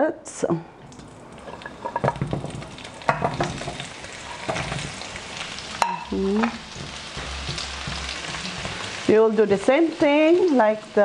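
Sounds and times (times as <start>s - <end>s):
frying sizzle: 0.9s - 11.0s
slices dropping into hot oil: 1.0s - 8.9s.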